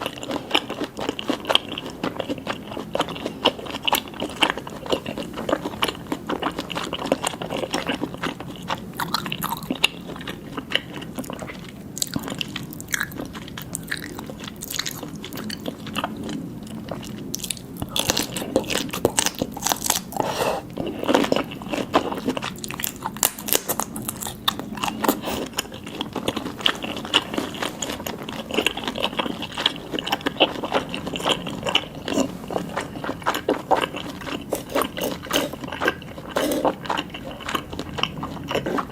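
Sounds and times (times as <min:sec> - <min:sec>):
person chewing seafood: 0:00.0 - 0:38.9.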